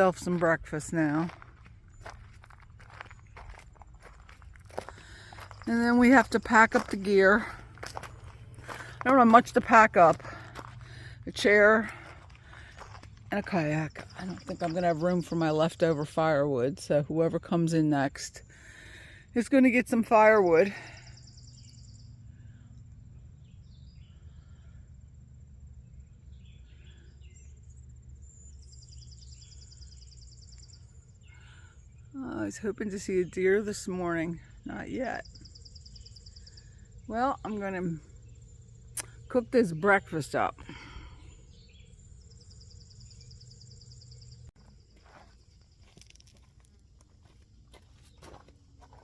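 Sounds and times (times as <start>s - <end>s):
steady low hum: 0.0s - 17.4s, 20.7s - 49.0s
bird chirps: 20.9s - 24.7s, 25.9s - 44.6s.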